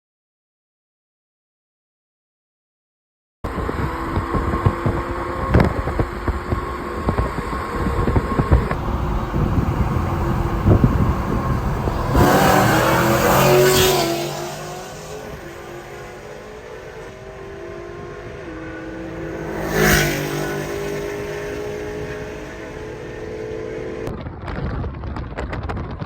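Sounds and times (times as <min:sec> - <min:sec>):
cars accelerating at full throttle: 0:03.5 - 0:24.1
engine rising note: 0:07.9 - 0:24.1.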